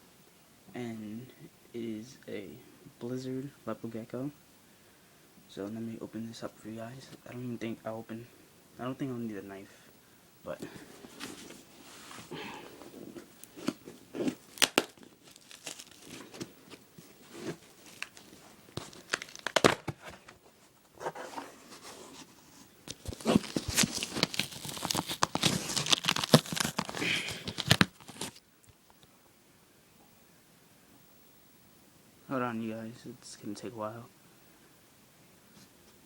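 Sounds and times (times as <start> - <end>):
cardboard crinkling: 10.7 - 28.4
packing tape ripping: 13.0 - 20.2, 22.9 - 28.4.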